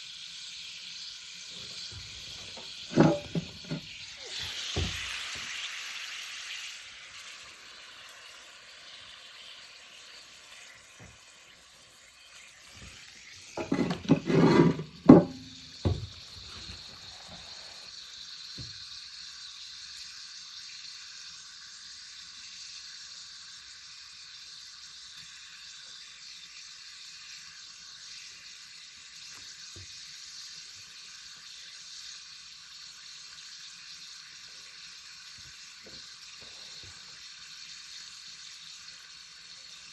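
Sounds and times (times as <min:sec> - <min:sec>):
meat sizzling over a fire: 0:00.0 - 0:39.9
loud knocks and clatter: 0:13.6 - 0:16.2.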